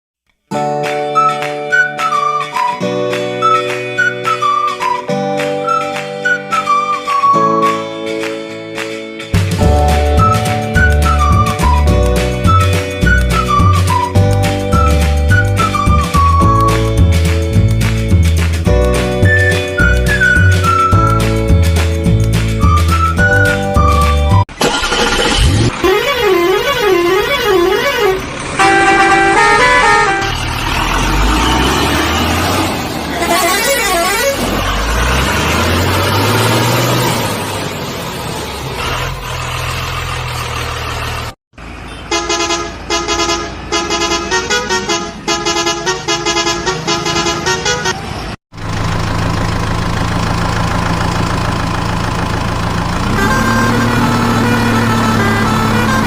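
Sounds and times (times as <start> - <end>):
engine revving: 9.5 - 41.4, 48.6 - 56.0
engine drone: 14.8 - 42.2, 48.5 - 56.0
warbling horn toots: 22.7 - 30.4, 33.1 - 34.7, 53.1 - 56.0
rapid horn honks: 24.8 - 30.5, 33.1 - 34.7, 41.9 - 48.1, 53.1 - 56.0.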